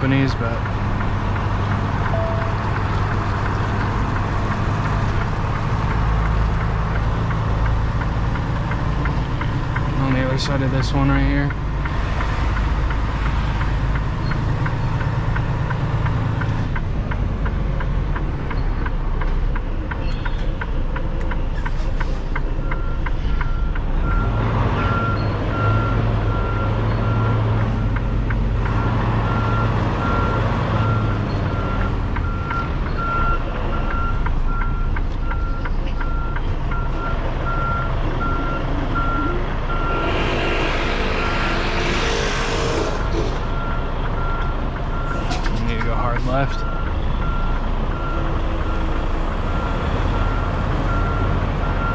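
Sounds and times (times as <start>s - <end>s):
diesel truck engine idling: 0.0s - 40.1s, 41.9s - 51.9s
reversing alarm beeping: 2.0s - 3.1s, 22.0s - 48.9s, 49.5s - 51.9s.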